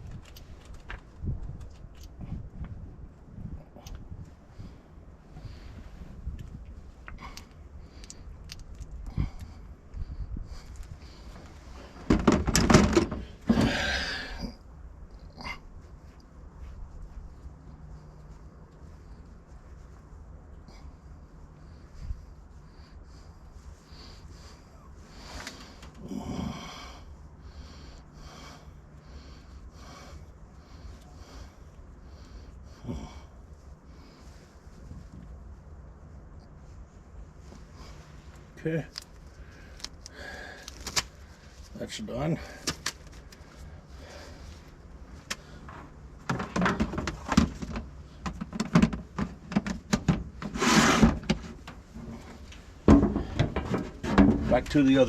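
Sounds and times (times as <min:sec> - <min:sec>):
low steady hum: 0:00.0 - 0:55.0
man breathing heavily: 0:03.4 - 0:12.4, 0:13.2 - 0:35.0, 0:37.3 - 0:48.3
knocks and clatters: 0:12.0 - 0:13.7, 0:45.6 - 0:54.7.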